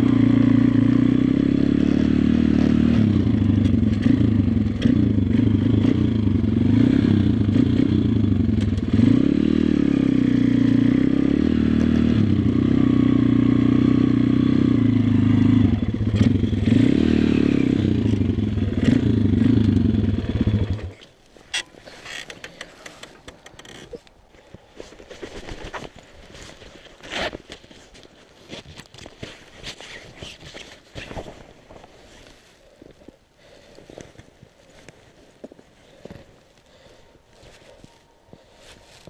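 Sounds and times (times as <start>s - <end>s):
pit bike engine revving: 0.0s - 21.0s.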